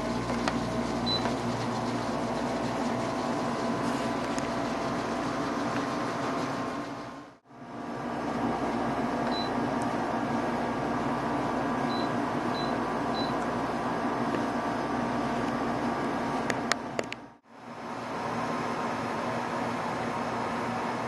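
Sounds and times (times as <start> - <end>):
air conditioner fan whirring: 0.0 - 21.0.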